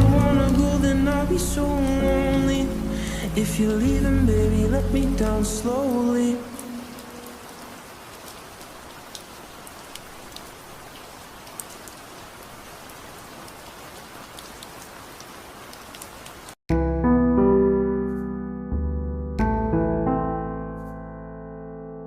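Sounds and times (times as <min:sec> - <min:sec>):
steady rain: 0:00.0 - 0:16.6.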